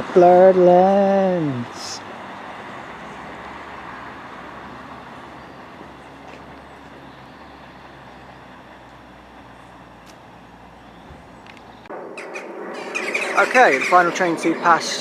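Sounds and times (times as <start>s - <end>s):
distant vehicle rumble: 0.0s - 15.0s.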